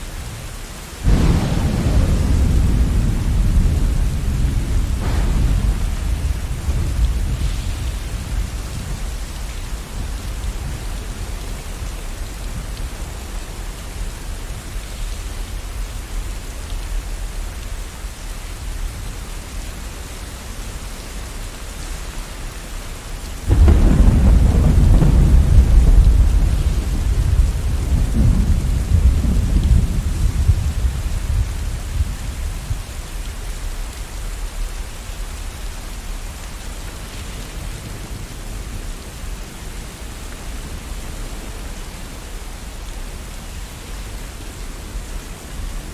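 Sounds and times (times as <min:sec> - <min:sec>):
steady rain: 0:00.0 - 0:45.9
thunderclap rolling into rumble: 0:01.0 - 0:11.4, 0:23.5 - 0:32.8.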